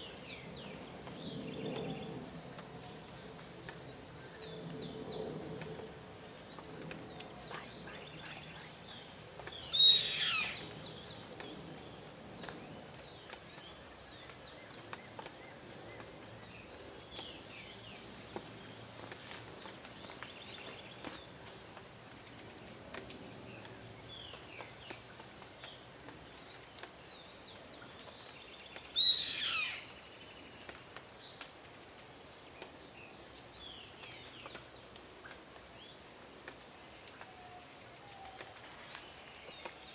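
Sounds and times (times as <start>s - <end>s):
high insect drone: 0.0s - 39.9s
small birds chirping: 6.7s - 11.6s
bird calls falling in pitch: 9.7s - 10.6s.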